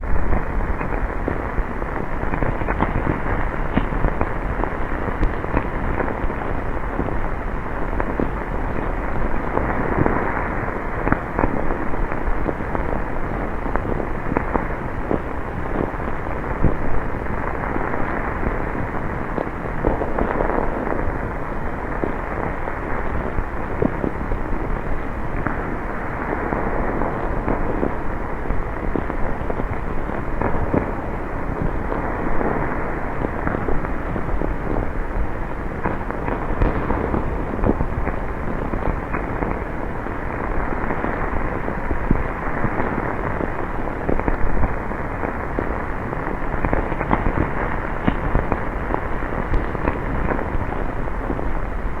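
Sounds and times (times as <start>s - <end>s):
heavy rain: 0.0s - 52.0s.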